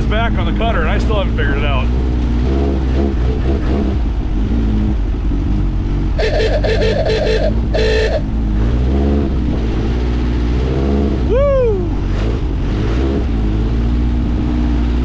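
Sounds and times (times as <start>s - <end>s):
dune buggy engine revving: 0.0s - 15.0s
loud rapid pulsing: 6.2s - 8.2s.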